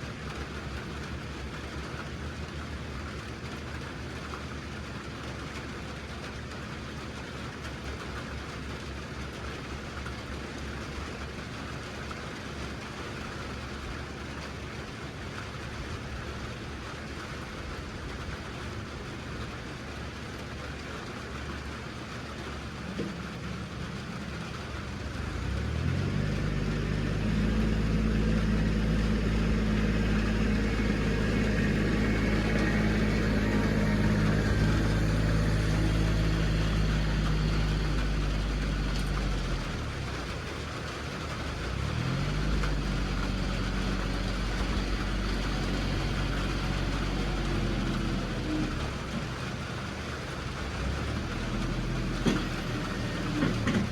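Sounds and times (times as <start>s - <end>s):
vehicle engine revving: 22.5s - 53.9s.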